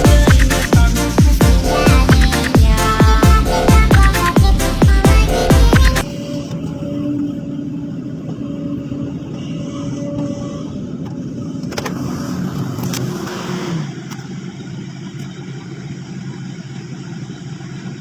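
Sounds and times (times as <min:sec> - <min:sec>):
excavator engine running: 0:00.0 - 0:07.0.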